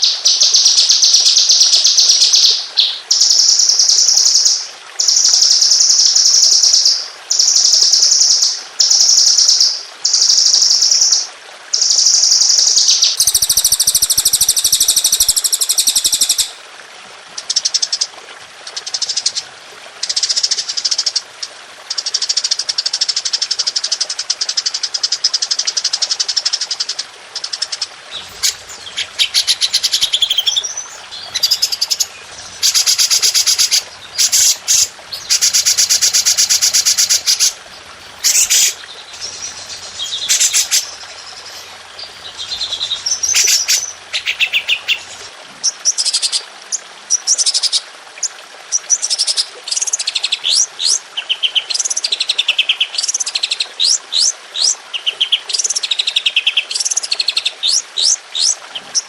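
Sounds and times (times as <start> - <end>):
songbird trilling: 12.9 - 16.6, 28.1 - 45.3.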